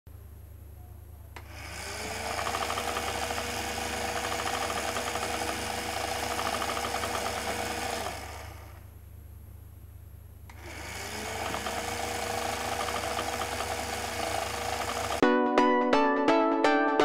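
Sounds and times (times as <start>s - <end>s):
fast rattling buzz of mechanism: 1.4s - 8.8s, 10.6s - 15.2s
small electric motor whine: 1.4s - 8.8s.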